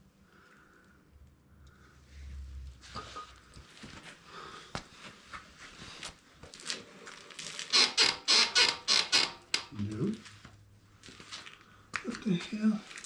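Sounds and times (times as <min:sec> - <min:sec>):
faint creaks and clicks: 0:06.5 - 0:10.0
motorcycle suspension squeaking: 0:07.7 - 0:09.8.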